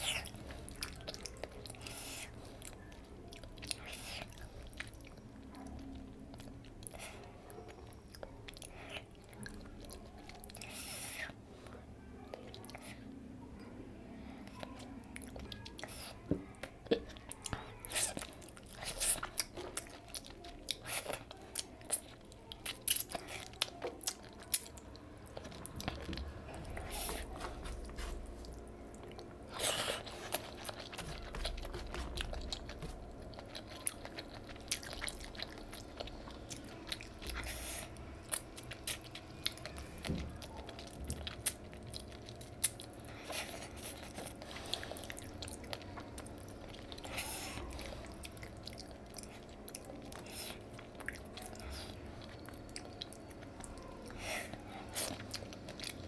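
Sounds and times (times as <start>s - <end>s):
person chewing: 0.0s - 11.4s, 14.4s - 56.0s.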